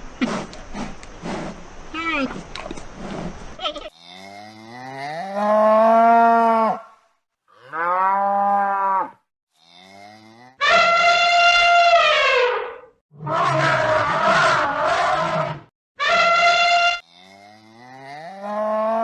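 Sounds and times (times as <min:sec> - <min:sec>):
cow mooing: 0:07.5 - 0:11.6, 0:16.4 - 0:19.0.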